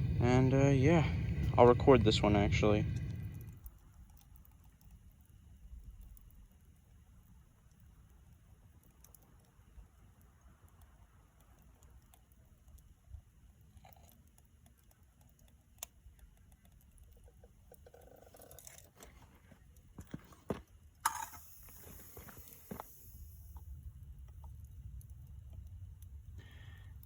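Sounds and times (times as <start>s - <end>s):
low steady rumble: 0.0s - 27.0s
metal clinks and knocks: 21.0s - 22.4s.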